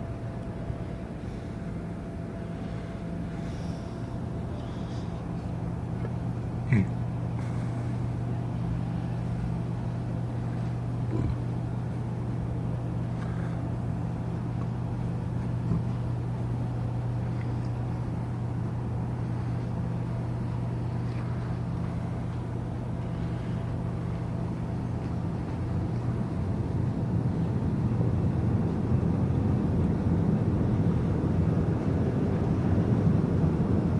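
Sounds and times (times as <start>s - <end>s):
ship machinery hum: 0.0s - 33.9s.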